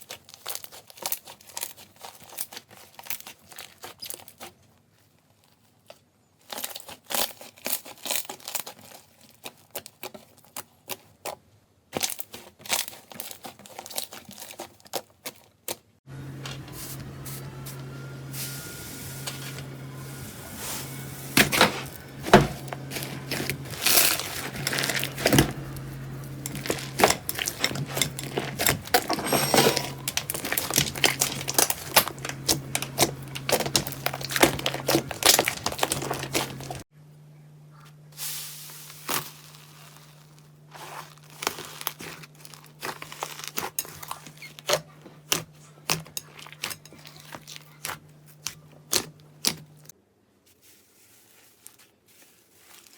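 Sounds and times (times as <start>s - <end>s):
low steady hum: 16.1s - 49.9s.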